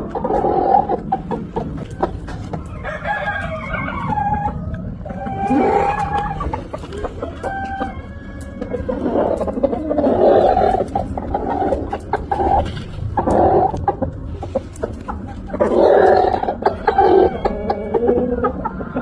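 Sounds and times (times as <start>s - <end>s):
chickens clucking: 0.0s - 19.0s
rooster crowing: 2.7s - 9.2s, 16.0s - 19.0s.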